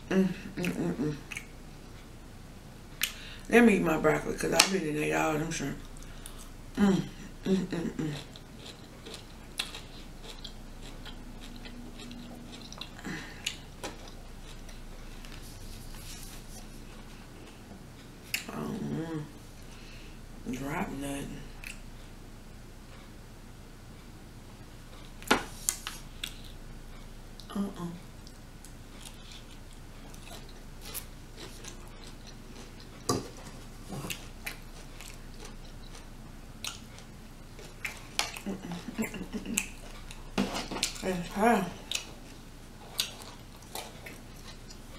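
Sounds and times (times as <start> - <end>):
mouth clicks and smacks: 0.6 - 1.5
chewing broccoli: 0.6 - 2.1, 7.2 - 17.6, 25.7 - 44.9.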